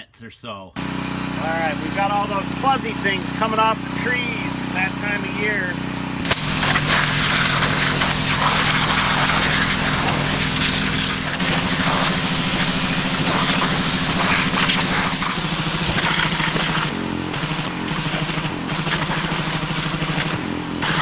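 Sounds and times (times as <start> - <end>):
engine running: 0.8 - 21.0
loud even hiss: 6.2 - 21.0.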